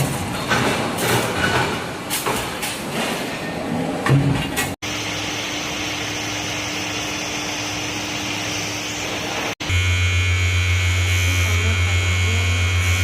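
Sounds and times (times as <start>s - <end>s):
loud electric buzz: 4.8s - 13.0s
mechanical whirring: 6.5s - 13.0s.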